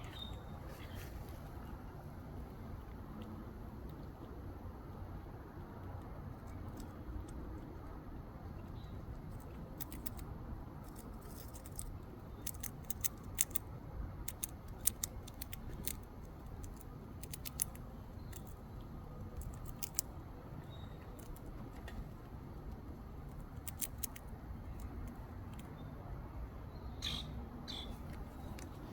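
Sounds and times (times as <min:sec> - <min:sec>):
squirrel gnawing with clicks and crunches: 0:00.0 - 0:26.8, 0:27.9 - 0:28.9.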